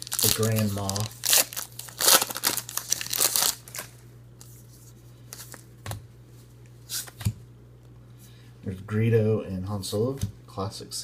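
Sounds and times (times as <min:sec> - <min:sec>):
trading cards rustling: 0:00.0 - 0:04.0.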